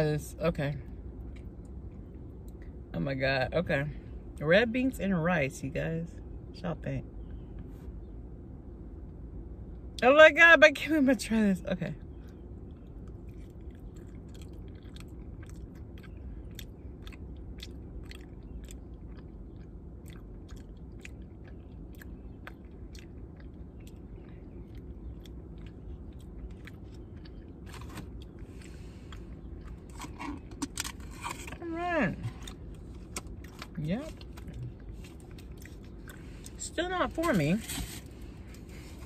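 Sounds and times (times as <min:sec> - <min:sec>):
steady low hum: 0:00.0 - 0:39.0
chewing with wet mouth clicks: 0:12.0 - 0:30.9, 0:32.4 - 0:36.6.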